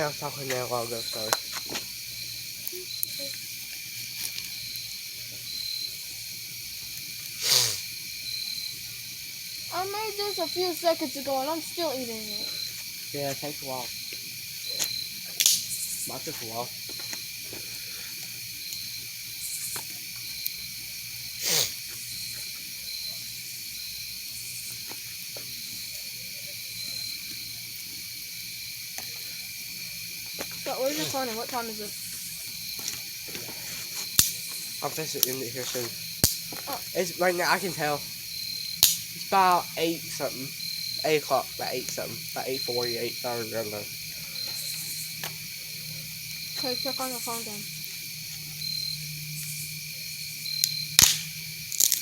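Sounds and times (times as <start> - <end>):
campfire crackling: 0.0 - 52.0
insects trilling: 0.0 - 52.0
steady hiss: 0.0 - 52.0
faint clicks: 38.8 - 39.0.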